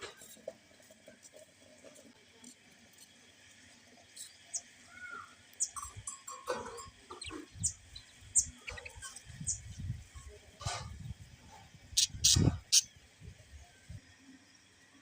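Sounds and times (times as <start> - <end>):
parrots chirping and squawking: 5.6 - 9.6, 12.0 - 12.9.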